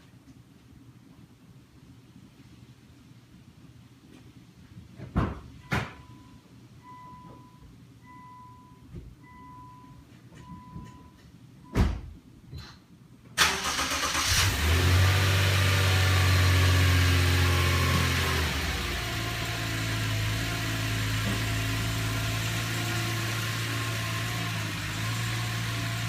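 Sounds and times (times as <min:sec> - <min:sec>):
car warning chime beeping: 0:05.6 - 0:11.2
car engine starting and idling: 0:13.4 - 0:26.0.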